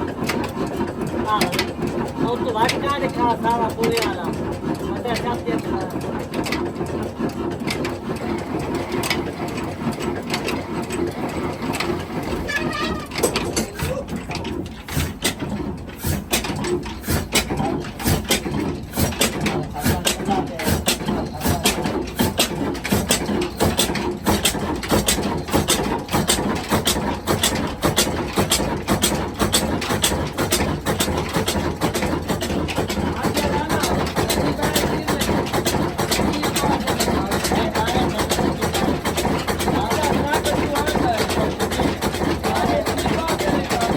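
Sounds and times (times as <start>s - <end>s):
diesel engine running: 7.6s - 43.9s.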